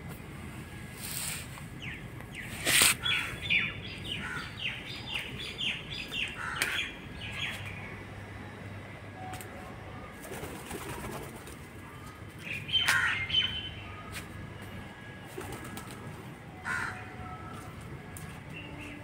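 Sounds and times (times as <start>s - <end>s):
birds chirping and calling: 1.8s - 8.0s, 12.4s - 13.9s.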